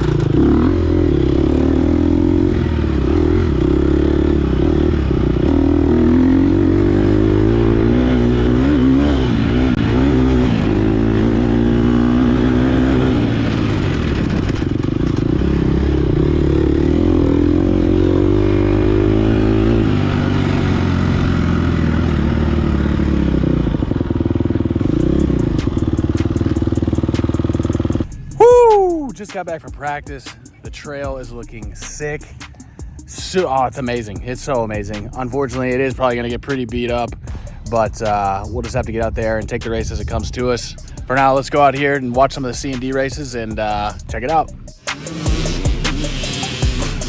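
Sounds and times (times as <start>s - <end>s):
dirt bike engine revving: 0.0s - 29.2s, 40.8s - 47.0s.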